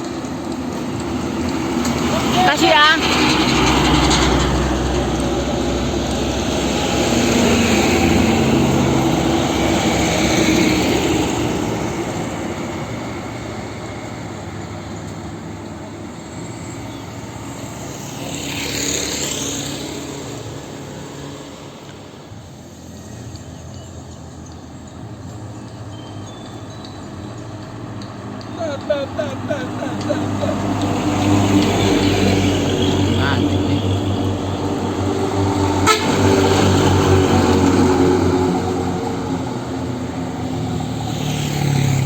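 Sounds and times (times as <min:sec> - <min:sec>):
heavy vehicle passing: 0:00.0 - 0:23.1, 0:27.8 - 0:42.0.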